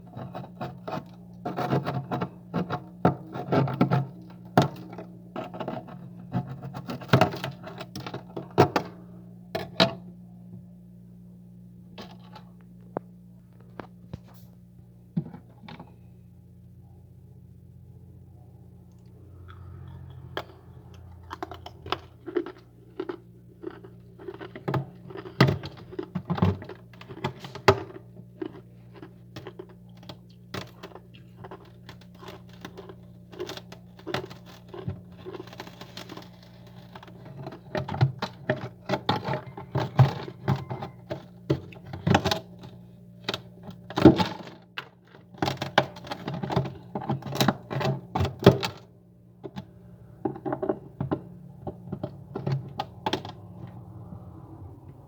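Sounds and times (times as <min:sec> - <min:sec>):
frost and ice crunching: 0:00.0 - 0:08.8, 0:19.5 - 0:48.8
steady low hum: 0:00.0 - 0:55.0.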